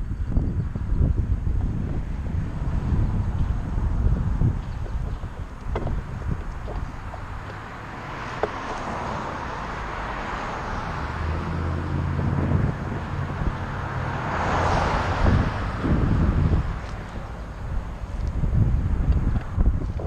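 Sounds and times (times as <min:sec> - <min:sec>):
low vehicle engine hum: 0:00.0 - 0:20.0
traffic noise: 0:00.0 - 0:20.0
wind rushing over microphone: 0:00.0 - 0:20.0.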